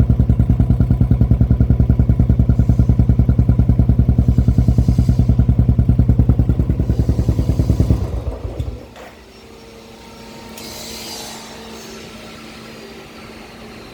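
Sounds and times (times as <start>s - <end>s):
motorcycle engine idling: 0.0s - 9.0s
brief hiss: 10.5s - 12.4s.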